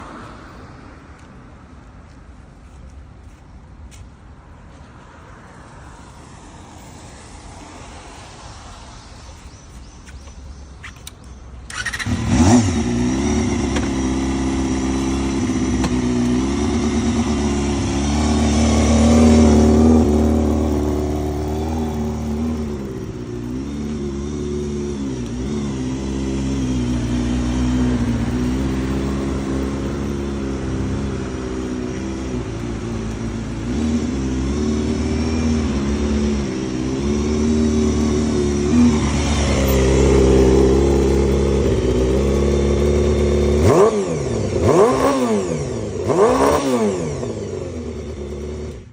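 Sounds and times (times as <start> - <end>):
motorcycle engine idling and revving: 0.0 - 48.9
motorcycle engine starting: 11.0 - 48.9.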